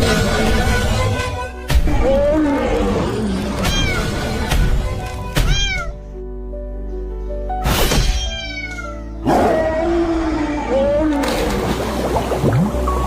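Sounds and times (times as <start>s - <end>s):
background music: 0.0s - 13.0s
cat meowing: 3.6s - 4.1s, 5.4s - 6.0s, 8.2s - 9.1s.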